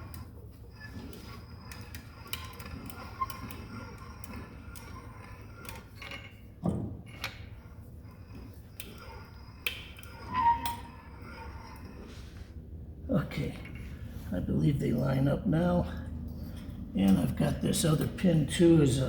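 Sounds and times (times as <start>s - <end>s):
hand winch clicking: 0.0s - 6.5s, 7.1s - 12.1s.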